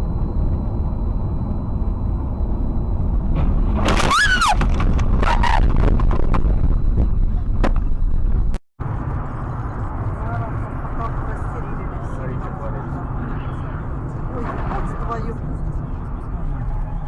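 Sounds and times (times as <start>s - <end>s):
road rumble: 0.0s - 17.0s
car crash crunching impacts: 3.3s - 6.4s
tyre squeal: 3.9s - 5.8s.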